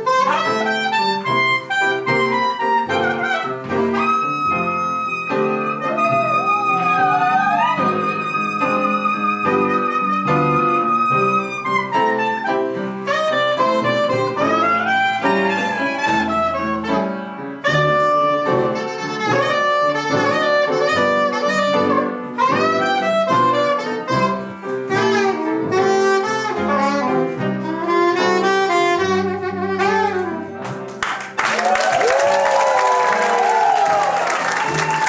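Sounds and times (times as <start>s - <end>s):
saxophone melody: 0.0s - 30.8s
blues band playing: 0.0s - 33.0s.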